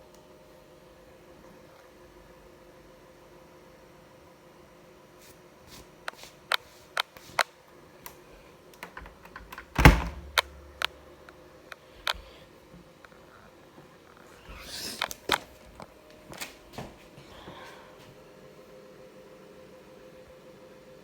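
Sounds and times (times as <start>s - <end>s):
sharp clicks: 8.8s - 11.0s.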